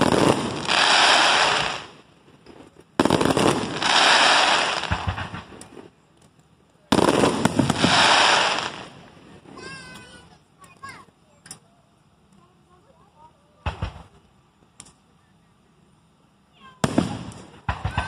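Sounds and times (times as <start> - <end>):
firework shells bursting: 0.0 - 9.2, 13.6 - 15.2, 16.8 - 18.0
firework crackling: 0.0 - 18.0.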